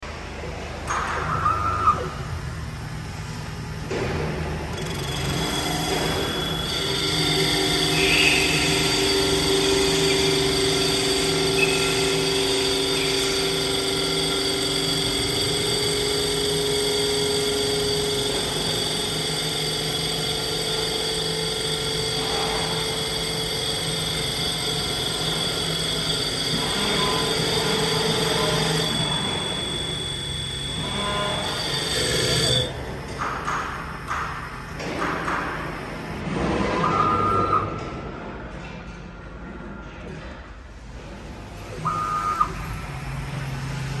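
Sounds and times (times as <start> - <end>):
wood lathe motors whining: 4.6 - 36.2.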